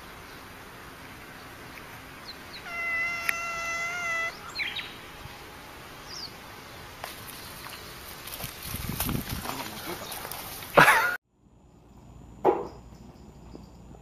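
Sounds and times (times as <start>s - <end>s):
cat chirping: 2.5s - 5.0s
cat meowing: 2.6s - 4.4s.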